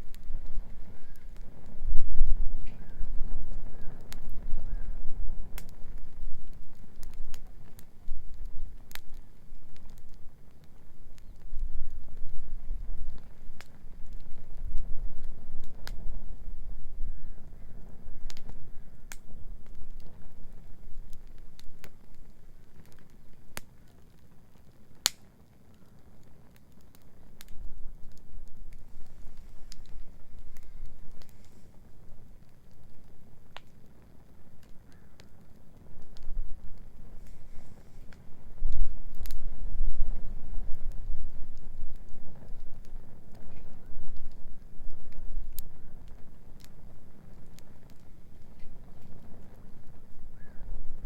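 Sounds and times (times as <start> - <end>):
bonfire crackling: 0.0 - 51.0.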